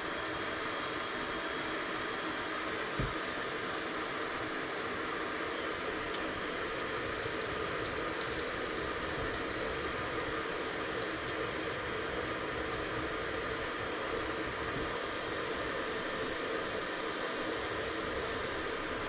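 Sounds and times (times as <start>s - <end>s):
wood fire crackling: 6.1s - 16.7s.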